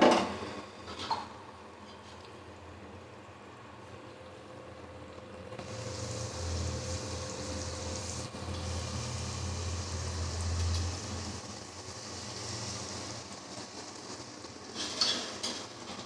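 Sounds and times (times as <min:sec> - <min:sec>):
curry sizzling in a hot pan: 0:05.6 - 0:16.0.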